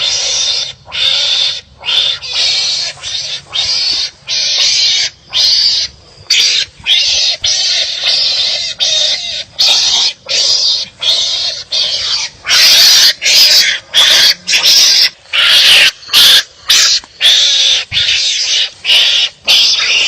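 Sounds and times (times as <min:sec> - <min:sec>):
animals making rasping bark-like calls: 0:00.0 - 0:20.0.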